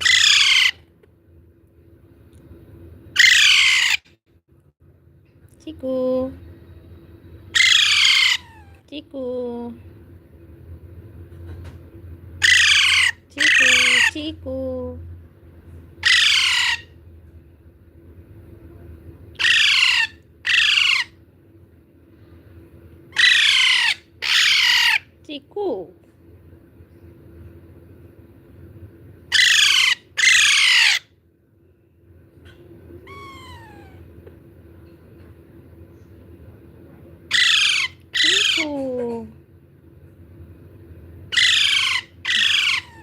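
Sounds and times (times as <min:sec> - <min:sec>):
parrot squawking: 0:00.0 - 0:00.9, 0:03.2 - 0:04.1, 0:07.5 - 0:08.8, 0:12.4 - 0:14.3, 0:16.0 - 0:17.0, 0:19.4 - 0:21.2, 0:23.1 - 0:25.2, 0:29.3 - 0:31.2, 0:32.5 - 0:34.1, 0:37.3 - 0:39.0, 0:41.3 - 0:43.0
low background hum: 0:00.0 - 0:43.0.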